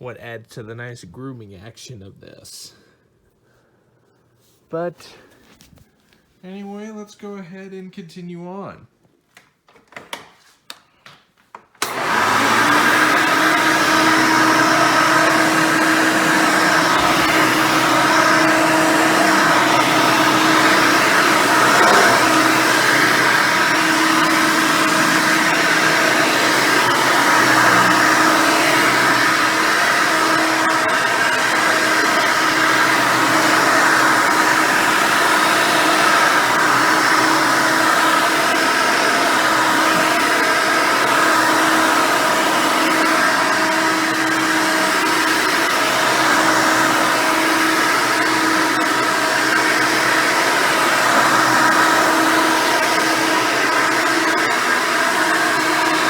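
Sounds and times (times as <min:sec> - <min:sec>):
upright vacuum cleaner running: 0:11.8 - 0:56.0.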